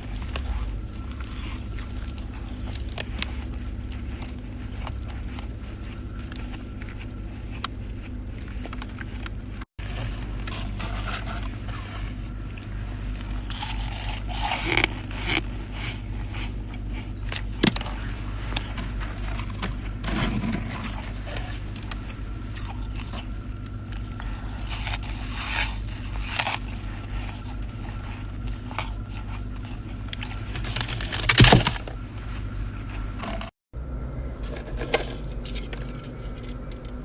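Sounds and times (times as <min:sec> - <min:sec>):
ice scraping and crunching: 0:00.0 - 0:16.2, 0:17.1 - 0:33.5, 0:34.4 - 0:37.0
freezer low hum: 0:00.0 - 0:37.0
ice cracks: 0:30.6 - 0:31.9.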